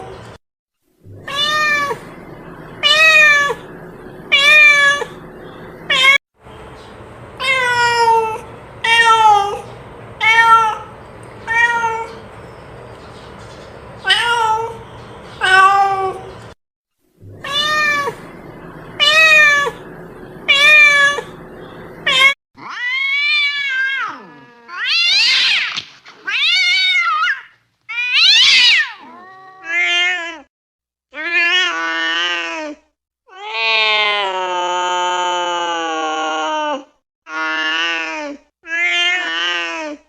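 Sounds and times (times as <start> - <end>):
cats meowing: 1.1 - 5.3, 5.9 - 6.2, 10.2 - 12.2, 14.0 - 14.8, 15.4 - 16.3, 17.3 - 21.4, 22.0 - 30.4.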